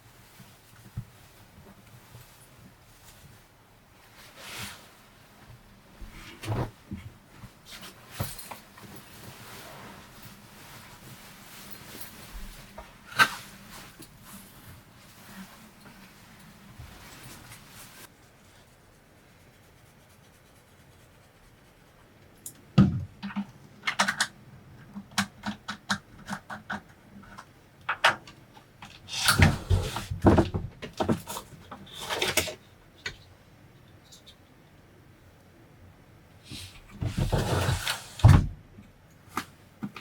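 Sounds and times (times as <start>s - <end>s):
rustling: 6.1s - 22.4s.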